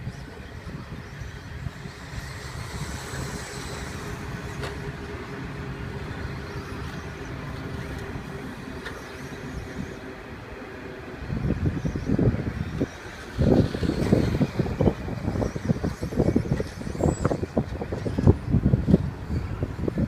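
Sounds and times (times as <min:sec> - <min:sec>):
rc truck motor whine: 0:00.0 - 0:10.5, 0:11.2 - 0:20.0.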